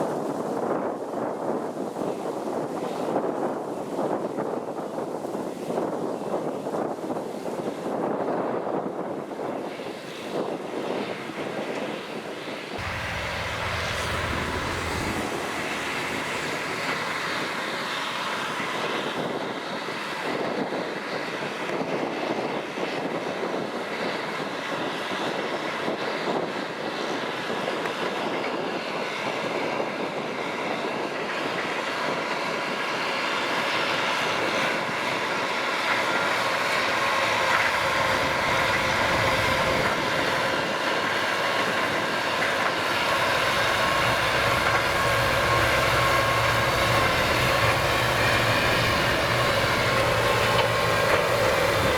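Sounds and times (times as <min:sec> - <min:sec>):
tractor diesel engine running: 0:12.8 - 0:19.4, 0:33.3 - 0:51.9.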